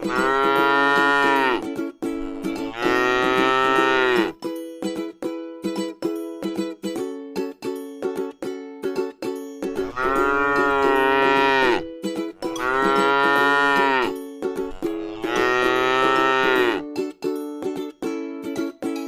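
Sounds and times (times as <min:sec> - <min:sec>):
cow mooing: 0:00.0 - 0:01.6, 0:02.2 - 0:04.3, 0:09.8 - 0:14.1, 0:14.7 - 0:16.8.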